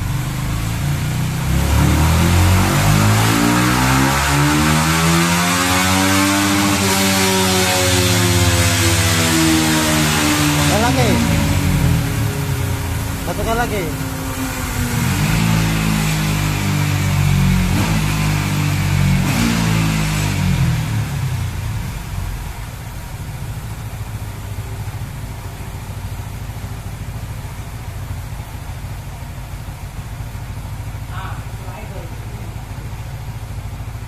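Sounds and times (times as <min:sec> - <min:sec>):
motorcycle engine idling: 0:00.0 - 0:04.4, 0:06.0 - 0:34.0
motorcycle engine revving: 0:00.0 - 0:34.0.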